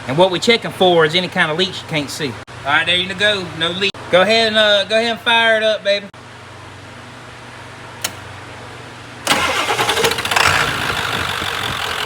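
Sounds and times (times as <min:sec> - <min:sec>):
click: 0:08.0 - 0:08.2
diesel engine cranking and idling: 0:09.2 - 0:12.0.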